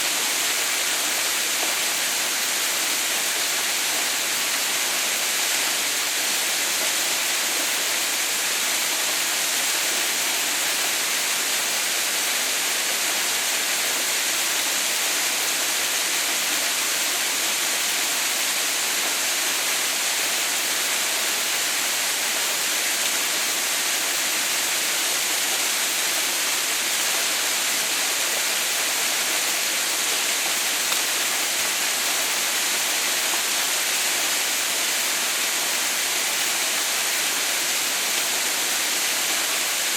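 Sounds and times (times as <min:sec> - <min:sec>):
waterfall hissing: 0:00.0 - 0:39.9.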